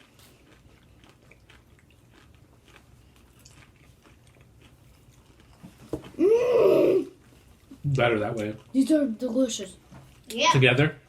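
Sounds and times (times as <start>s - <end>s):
chewing and crunching candy: 0.0s - 6.2s.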